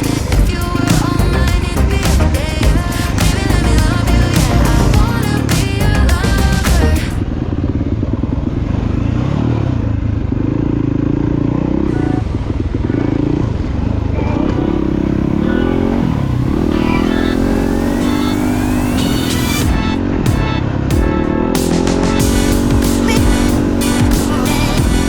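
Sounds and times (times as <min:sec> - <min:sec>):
dirt bike engine revving: 0:00.0 - 0:07.2, 0:14.3 - 0:25.0.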